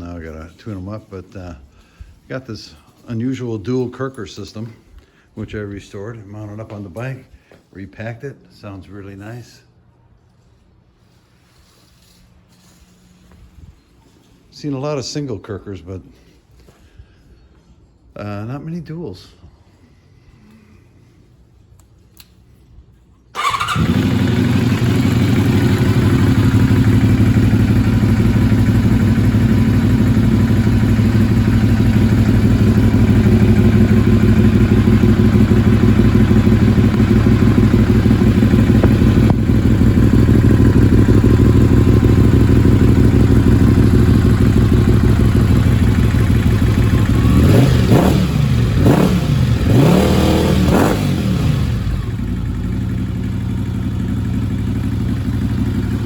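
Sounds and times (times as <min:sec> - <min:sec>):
motorcycle engine idling: 0:23.4 - 0:56.0
motorcycle throttle revs: 0:23.4 - 0:56.0.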